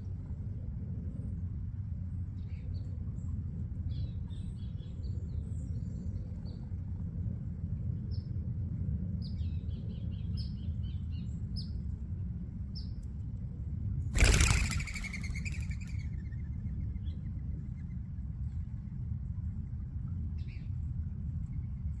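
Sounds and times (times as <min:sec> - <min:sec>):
small birds chirping: 0:14.2 - 0:18.2.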